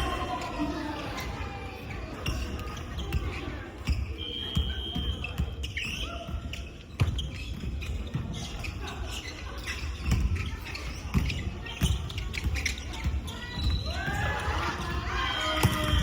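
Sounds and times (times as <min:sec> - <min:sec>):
echoing hall background: 0:00.0 - 0:16.0
shoe squeaks: 0:01.8 - 0:14.0.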